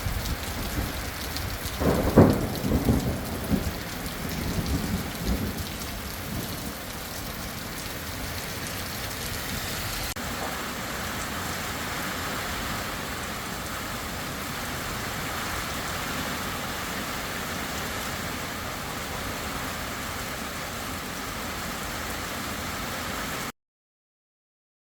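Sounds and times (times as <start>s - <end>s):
low thunder rumble: 0.0s - 8.9s
heavy rain hissing: 0.0s - 23.5s.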